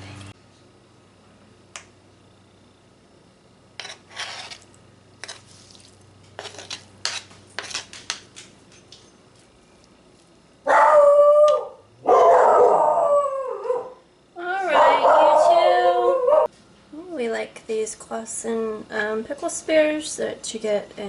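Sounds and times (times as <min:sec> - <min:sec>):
dog howling: 0:10.7 - 0:14.0, 0:14.6 - 0:16.5.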